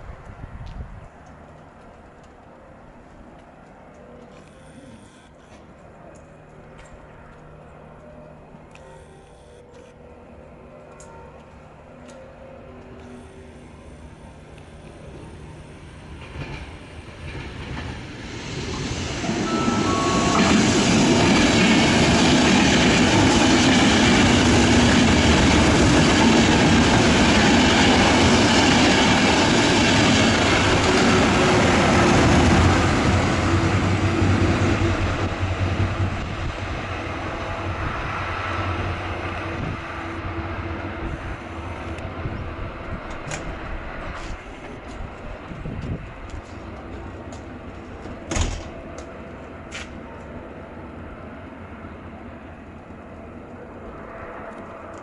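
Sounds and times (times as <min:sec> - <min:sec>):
train wheels rumbling and clattering: 0:14.4 - 0:51.0.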